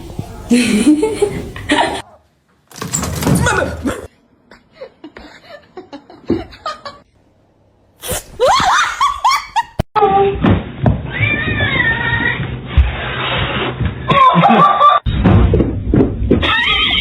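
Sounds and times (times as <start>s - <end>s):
person laughing: 14.2s - 15.0s.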